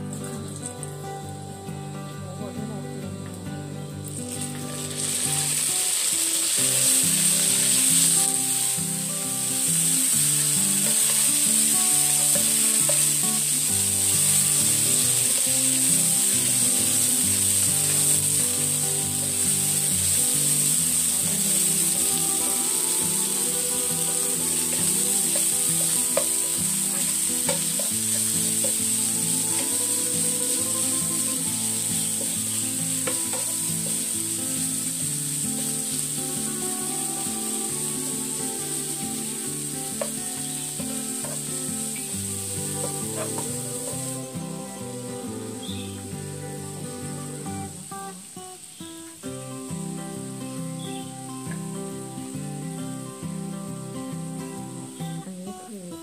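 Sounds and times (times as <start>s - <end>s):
meat sizzling in hot oil: 4.2s - 48.4s.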